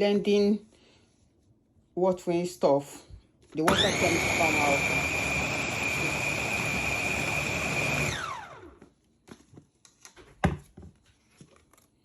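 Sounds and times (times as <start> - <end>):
meat grinder motor whining: 3.7 - 8.8.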